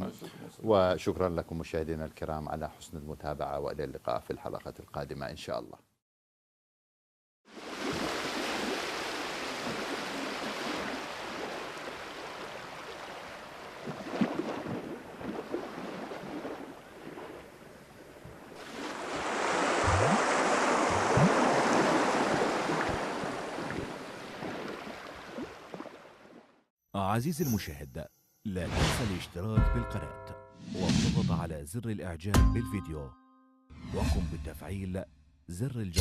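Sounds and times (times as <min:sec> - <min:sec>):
sea waves washing in: 0:07.5 - 0:26.4.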